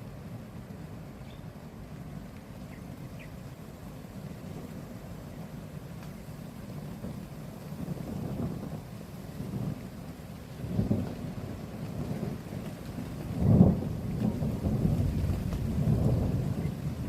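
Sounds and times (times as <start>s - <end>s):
rain: 0.0s - 17.0s
thunder rumbling: 6.4s - 17.0s.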